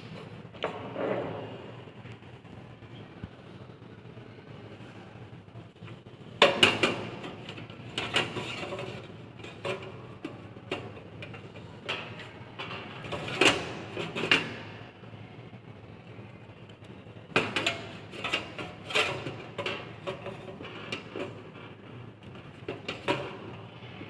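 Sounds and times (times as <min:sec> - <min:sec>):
parts sliding scrapes: 0:07.2 - 0:10.0.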